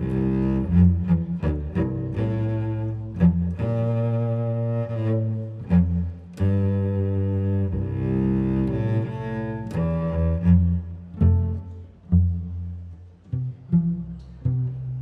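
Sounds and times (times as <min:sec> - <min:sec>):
bowed cello: 0:00.0 - 0:15.0.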